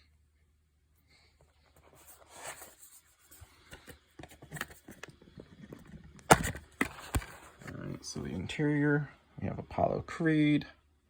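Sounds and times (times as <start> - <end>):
disc case clicking open: 3.7 - 7.7.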